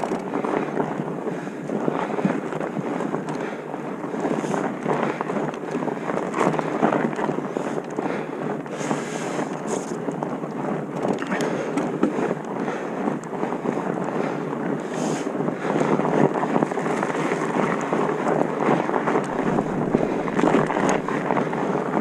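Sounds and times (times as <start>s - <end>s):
bike rattling over rough ground: 15.8s - 21.8s
wind rushing over microphone: 16.0s - 22.0s
bike tyre noise on dirt: 16.4s - 21.8s.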